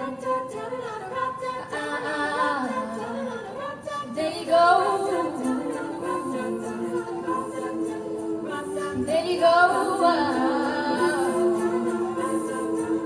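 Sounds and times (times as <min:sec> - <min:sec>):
women's a cappella group singing: 0:00.0 - 0:13.0.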